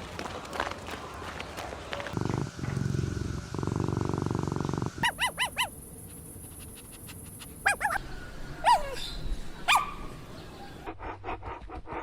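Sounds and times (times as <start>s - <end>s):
puppy yipping and whimpering: 5.0s - 5.7s, 7.6s - 8.0s, 8.6s - 10.0s.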